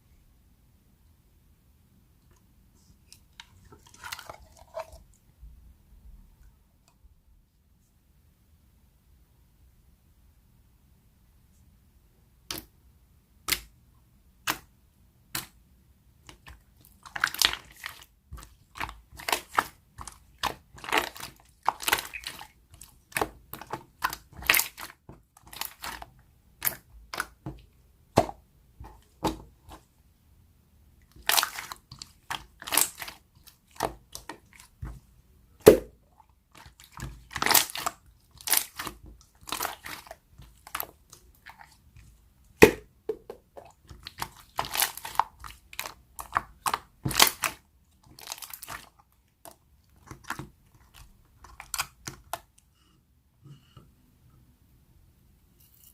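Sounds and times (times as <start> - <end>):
slime squished by hand: 16.3 - 27.4, 31.1 - 35.0, 35.6 - 42.9, 43.6 - 52.5.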